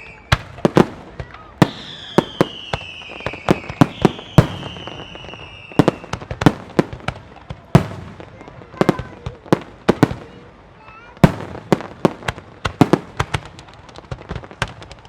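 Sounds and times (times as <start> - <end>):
descending firework whistle: 0.0 - 0.6, 1.4 - 6.2.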